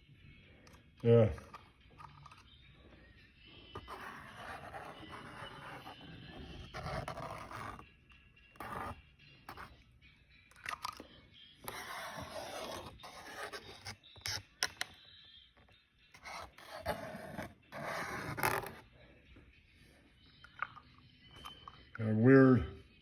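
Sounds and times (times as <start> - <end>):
drawing tool scratching: 3.7 - 7.9, 8.5 - 9.8, 11.6 - 14.9, 16.2 - 18.8.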